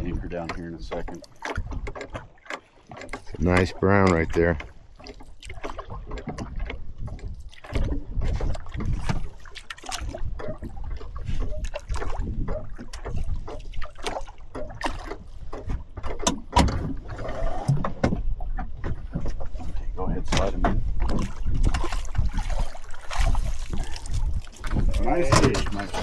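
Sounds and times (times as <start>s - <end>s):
water splashing against boat: 0.0s - 26.0s
knocks on boat: 12.2s - 17.0s, 17.6s - 19.5s, 20.2s - 22.3s, 24.6s - 26.0s.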